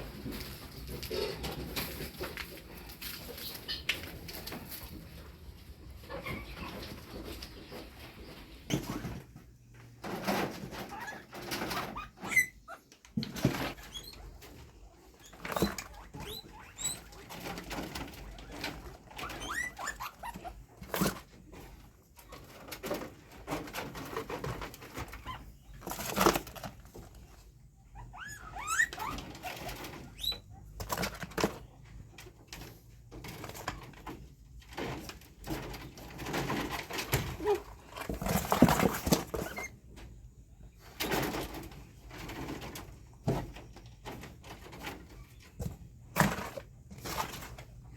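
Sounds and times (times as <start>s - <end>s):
guinea pigs scurrying and rustling: 0.0s - 47.9s
guinea pig squeaks: 6.0s - 7.4s, 10.7s - 23.0s, 23.7s - 31.6s, 36.2s - 39.8s.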